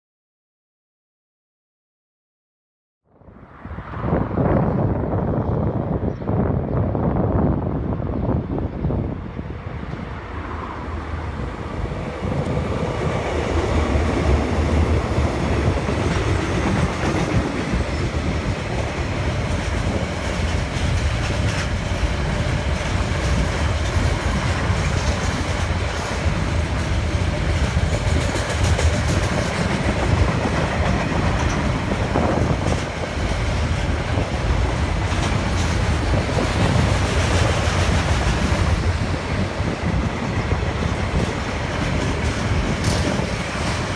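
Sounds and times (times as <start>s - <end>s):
train rumbling on track: 3.3s - 43.9s
wheels clicking over rail joints: 12.3s - 43.9s.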